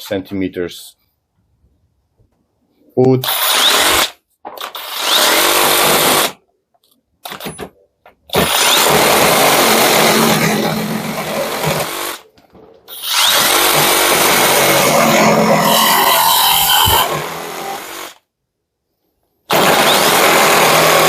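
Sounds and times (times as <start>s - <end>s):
reciprocating saw cutting wood: 12.9s - 18.2s.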